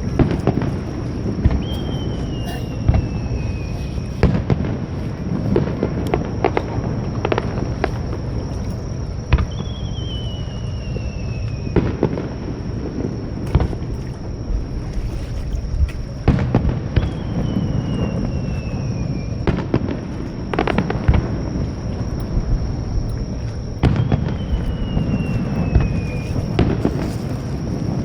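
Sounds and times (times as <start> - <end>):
fireworks bangs and pops: 0.0 - 8.6, 11.5 - 14.6, 15.7 - 22.6, 23.2 - 28.0
whistling firework shells: 0.0 - 28.0.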